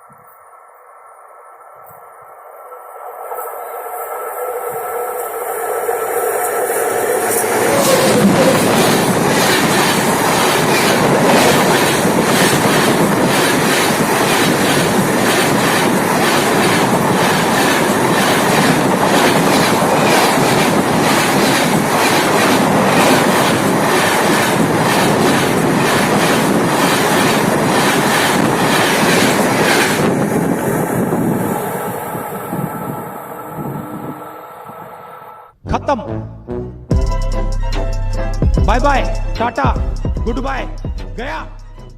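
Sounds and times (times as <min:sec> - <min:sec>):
train wheels rumbling on rails: 0:01.8 - 0:35.3
wheels clickety-clack: 0:04.7 - 0:30.5.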